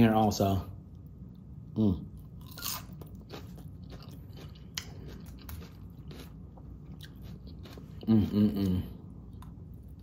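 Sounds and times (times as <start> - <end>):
chewing raw vegetables: 2.1 - 10.0.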